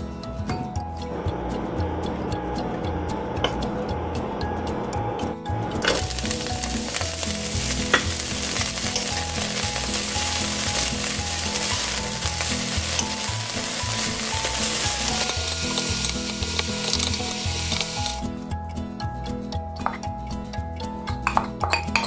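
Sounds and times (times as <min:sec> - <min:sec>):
bean sprouts sizzling in a pan: 0:05.9 - 0:18.3.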